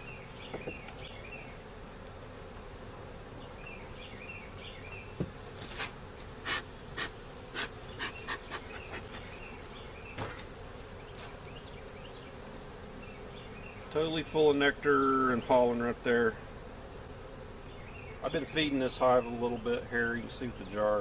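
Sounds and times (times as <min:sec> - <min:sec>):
honeybees humming: 0:00.0 - 0:21.0
short sharp hissing: 0:05.8 - 0:09.0.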